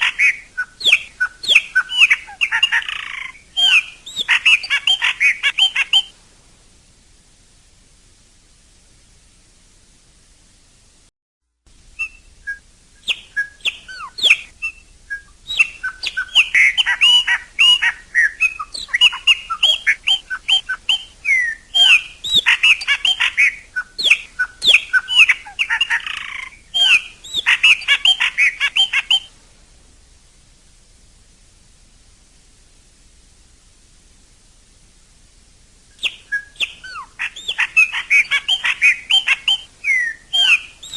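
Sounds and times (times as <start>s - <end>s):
blackbird singing: 0.0s - 6.1s, 12.0s - 29.3s, 36.0s - 40.9s
faint steady hiss: 0.0s - 40.9s.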